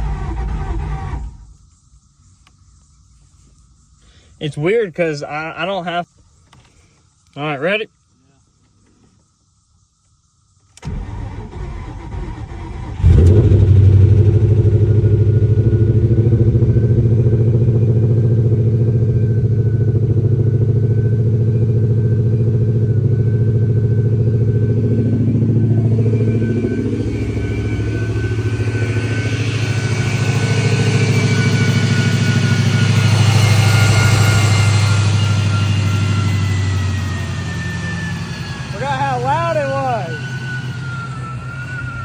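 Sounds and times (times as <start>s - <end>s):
car engine running loud: 12.0s - 42.0s.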